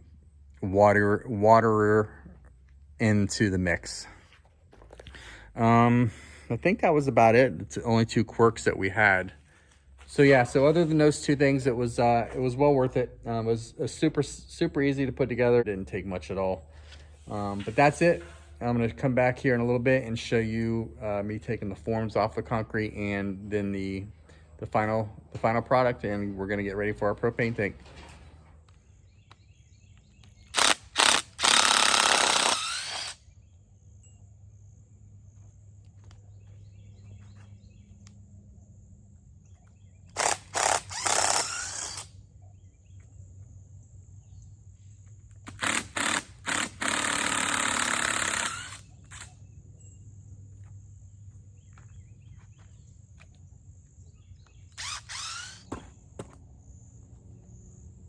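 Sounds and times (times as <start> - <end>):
insects chirring: 28.7 - 58.0
sharp clicks: 30.0 - 33.2.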